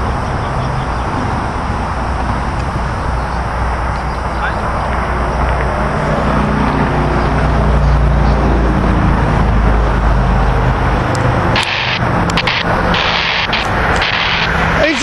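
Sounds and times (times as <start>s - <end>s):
passenger train passing: 0.0s - 15.0s
sharp clicks: 11.1s - 14.6s
harsh rushing hiss: 11.6s - 15.0s.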